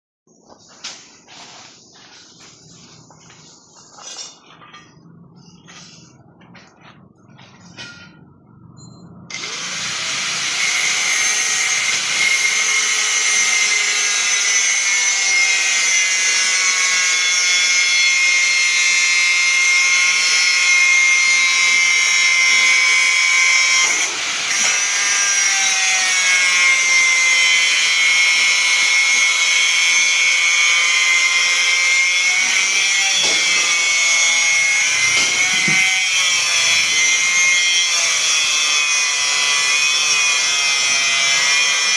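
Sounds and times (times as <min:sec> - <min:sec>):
power tool whining: 0:09.3 - 0:41.9.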